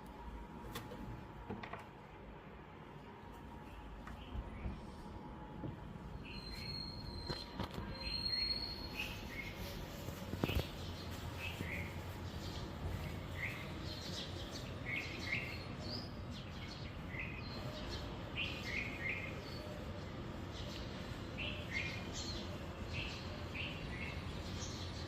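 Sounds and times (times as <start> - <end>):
low background noise: 0.0 - 25.0
birds chirping: 6.0 - 25.0.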